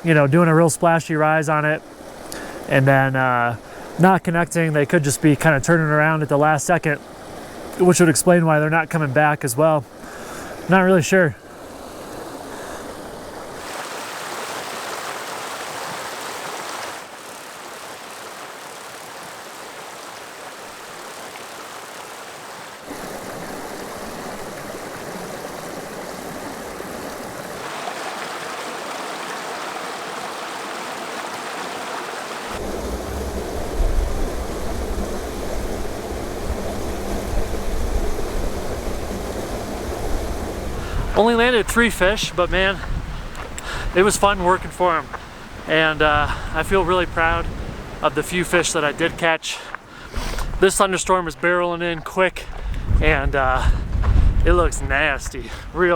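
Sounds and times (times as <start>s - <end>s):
creek water rushing and splashing: 0.0s - 55.9s
heavy low rumble: 32.6s - 43.3s.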